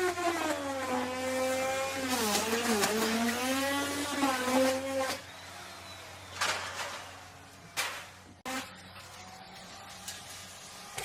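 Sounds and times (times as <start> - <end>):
electric router cutting wood: 0.0 - 6.4.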